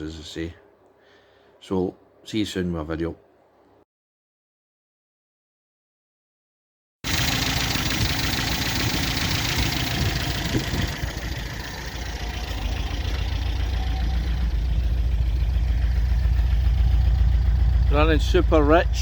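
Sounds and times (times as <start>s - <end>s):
car engine running rich: 7.1s - 19.0s.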